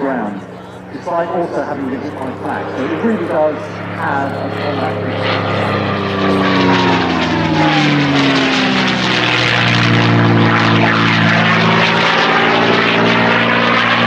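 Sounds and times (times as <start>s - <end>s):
propeller aircraft engine passing: 0.0s - 14.0s.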